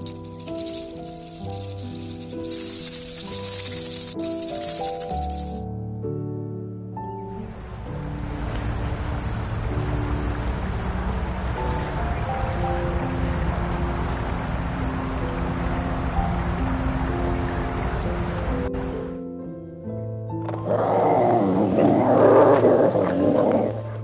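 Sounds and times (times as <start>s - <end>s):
insect trilling: 0.0s - 5.6s, 7.2s - 19.2s
soft background music: 0.0s - 24.0s.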